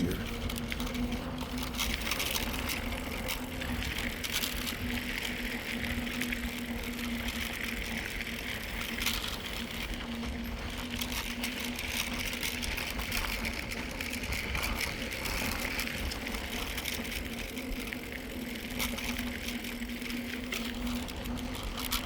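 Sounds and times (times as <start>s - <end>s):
bike tyre noise: 0.0s - 22.0s.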